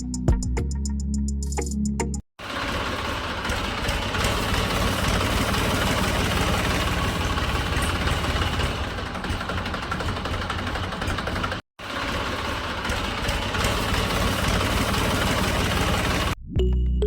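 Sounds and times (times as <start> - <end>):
small motor running: 2.4 - 16.4.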